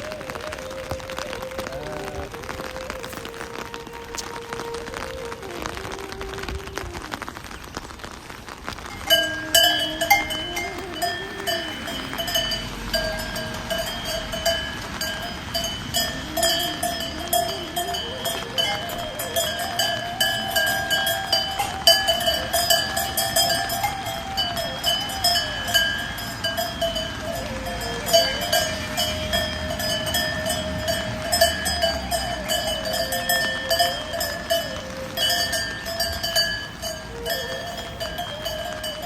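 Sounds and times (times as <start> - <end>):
sheep bells clanking: 8.9 - 39.0.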